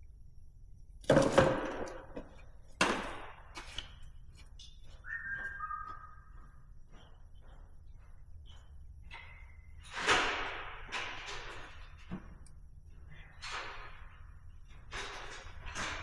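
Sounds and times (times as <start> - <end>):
hard parts knocking and clattering: 1.0 - 4.8, 8.0 - 16.0.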